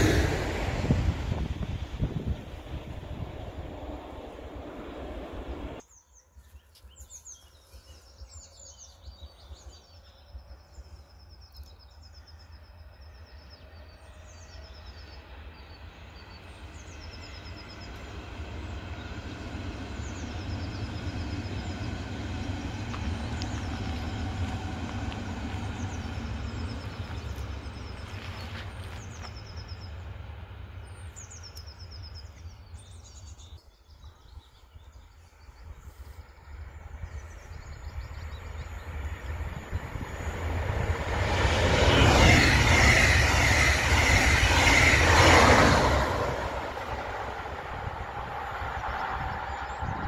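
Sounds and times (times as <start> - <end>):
wind buffeting microphone: 0.0 - 5.8, 36.6 - 50.0
electric train rumbling past: 0.0 - 5.9, 7.6 - 50.0.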